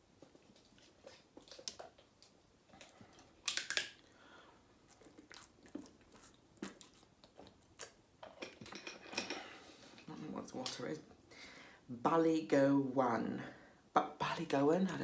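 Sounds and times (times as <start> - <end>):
chewing: 4.8 - 8.0.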